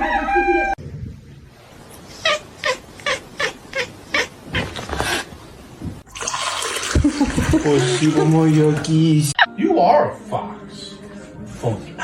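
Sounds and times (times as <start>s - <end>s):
rooster crowing: 0.0s - 0.8s.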